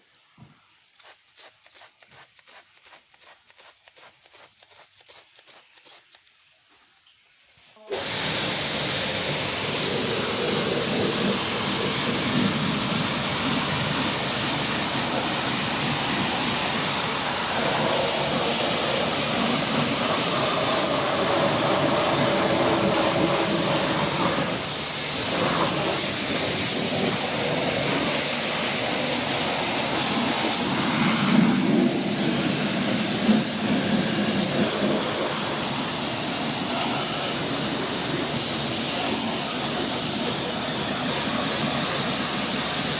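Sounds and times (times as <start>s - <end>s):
high-pressure water jet spraying: 1.0s - 6.2s, 7.8s - 42.9s.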